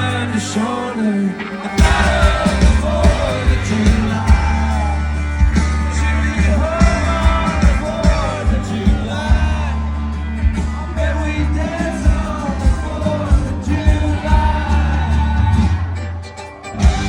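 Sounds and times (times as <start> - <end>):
country band playing: 0.0 - 17.0
lead vocal singing: 0.0 - 17.0.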